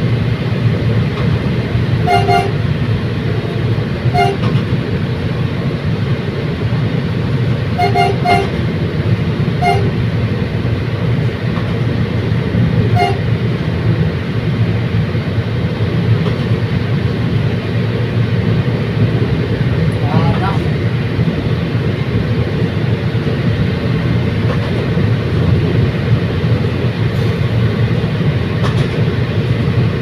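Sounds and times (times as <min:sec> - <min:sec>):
train rumbling: 0:00.0 - 0:30.0
train horn short toots: 0:02.0 - 0:02.6, 0:04.1 - 0:04.6, 0:07.8 - 0:08.6, 0:09.6 - 0:10.0, 0:12.9 - 0:13.3.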